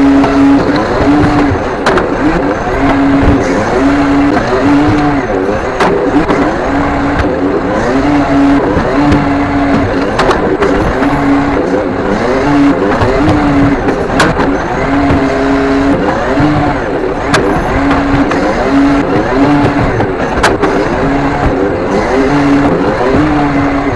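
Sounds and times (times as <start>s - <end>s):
hydraulic arm whine: 0.0s - 23.9s
shifting tones: 0.0s - 23.9s.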